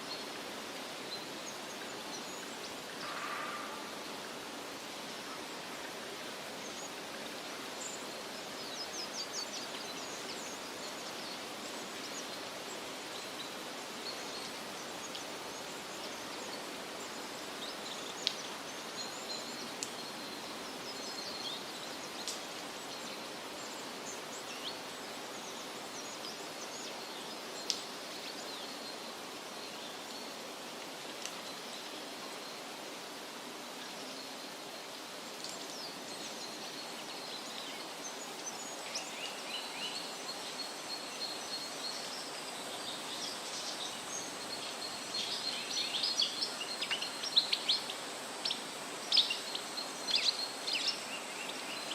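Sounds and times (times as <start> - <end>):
steady rushing hiss: 0.0 - 51.9
small birds chirping: 35.4 - 51.9.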